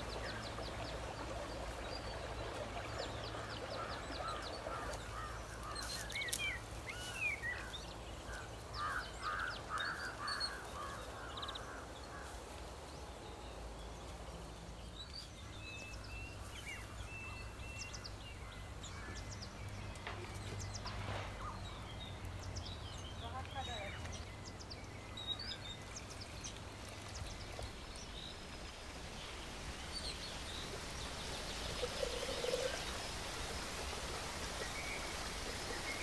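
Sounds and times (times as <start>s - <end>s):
birds calling and chirping: 0.0s - 36.0s.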